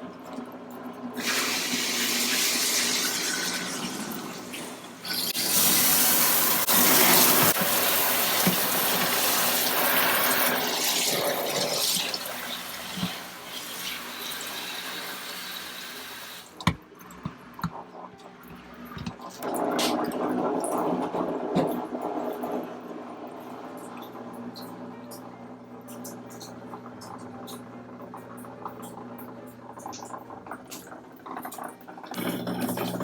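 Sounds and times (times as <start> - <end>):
water splashing into sink: 1.2 - 17.8.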